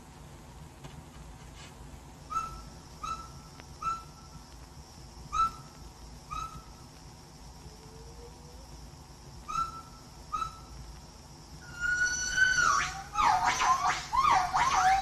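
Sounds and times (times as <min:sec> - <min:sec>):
bird whistled notes: 0:02.3 - 0:04.2, 0:05.3 - 0:05.7, 0:09.5 - 0:10.7, 0:11.6 - 0:15.0.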